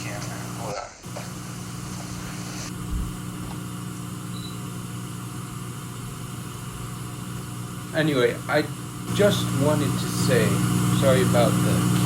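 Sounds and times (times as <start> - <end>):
low mechanical hum: 0.0 - 12.0
soft thump: 2.8 - 3.6.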